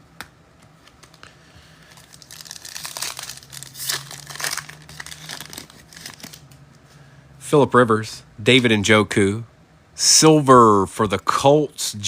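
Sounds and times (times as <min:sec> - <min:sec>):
foil wrapper crinkling and tearing: 0:01.8 - 0:06.4.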